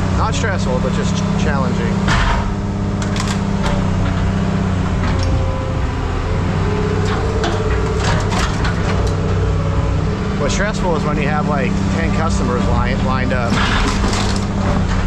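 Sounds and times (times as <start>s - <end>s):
engine running at low pitch: 0.0s - 15.0s
sharp knocks and clanks: 2.0s - 5.5s, 7.0s - 9.4s, 12.4s - 15.0s.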